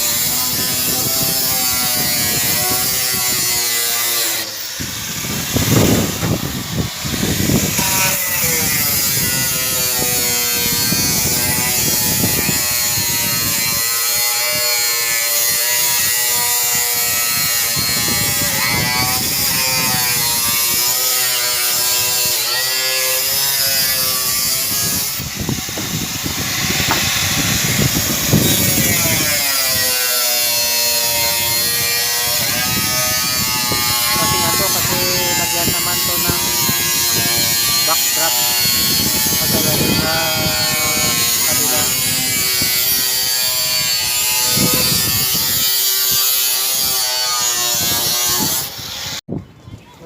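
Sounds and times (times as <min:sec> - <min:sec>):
electric drill motor whining: 0:00.3 - 0:14.5, 0:21.6 - 0:46.2.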